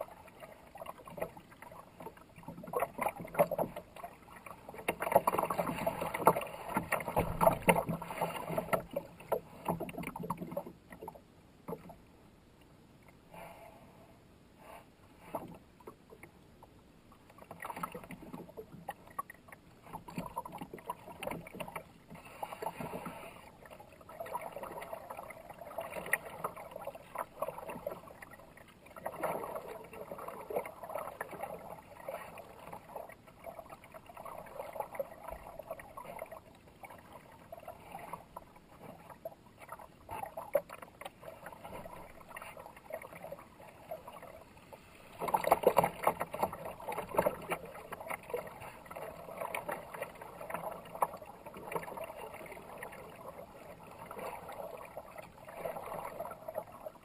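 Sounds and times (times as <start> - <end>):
kayak paddle splashing in water: 0.6 - 11.1, 19.9 - 57.0
river water flowing: 17.5 - 57.0.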